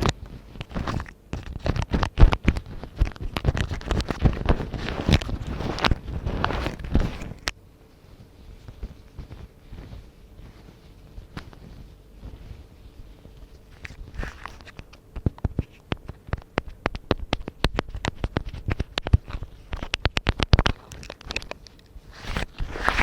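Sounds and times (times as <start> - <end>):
rubber glove rustling: 0.0 - 23.0
fingers tapping on a microphone: 14.6 - 21.9.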